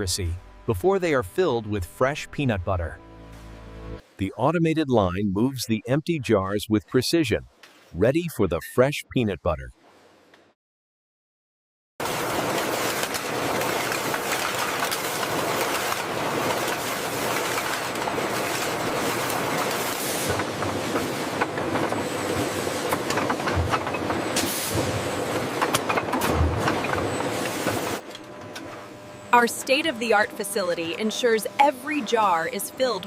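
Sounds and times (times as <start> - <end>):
glass jars rattling on conveyor: 12.2 - 24.4.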